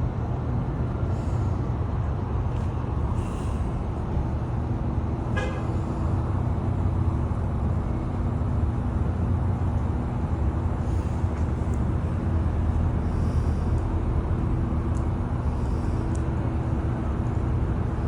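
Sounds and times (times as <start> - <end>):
low rumble of traffic: 0.0 - 18.0
short horn toot: 5.3 - 5.7.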